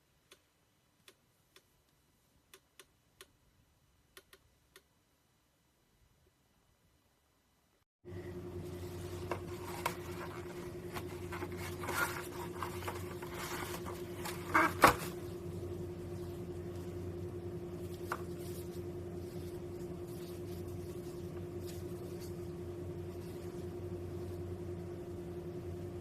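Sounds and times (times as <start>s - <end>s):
steady low hum: 8.1s - 26.0s.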